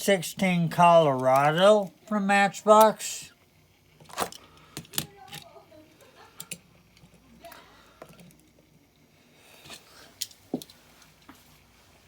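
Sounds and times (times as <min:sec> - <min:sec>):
toy trucks clicking and tapping: 0:06.4 - 0:08.5.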